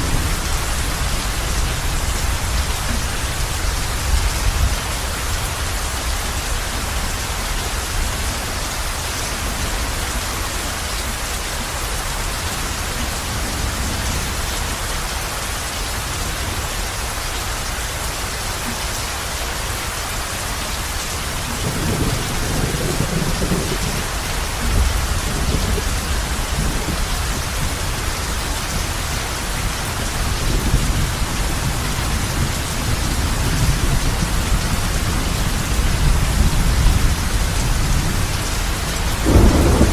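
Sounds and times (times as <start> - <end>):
heavy rain on a roof: 0.0 - 39.9
low thunder rumbling: 21.3 - 39.9.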